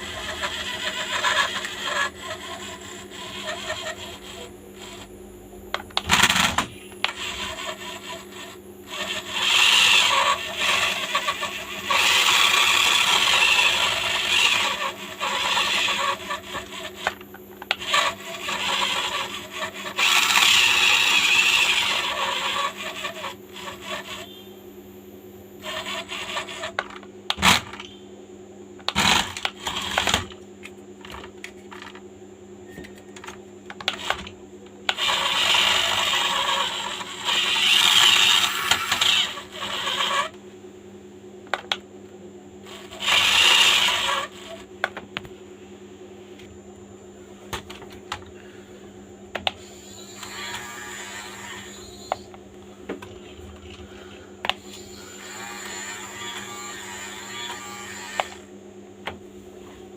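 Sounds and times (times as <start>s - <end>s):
small electric motor whirring: 0.0s - 27.8s, 28.9s - 30.3s, 33.8s - 34.3s, 34.9s - 40.4s, 42.6s - 44.7s, 49.4s - 52.4s, 54.5s - 58.5s.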